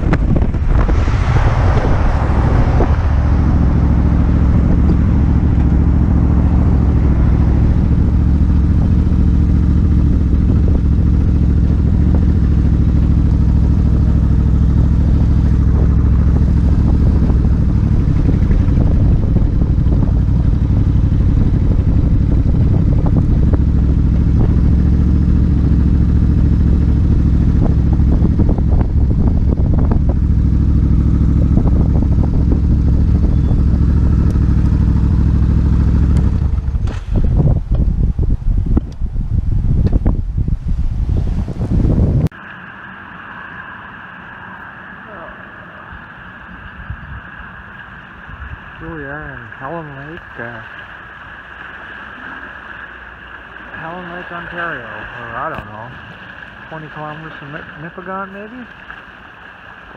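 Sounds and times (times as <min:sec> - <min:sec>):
wind rush on microphone: 0:00.0 - 0:42.4, 0:45.9 - 0:50.7
motorcycle engine cruising: 0:00.0 - 0:59.9.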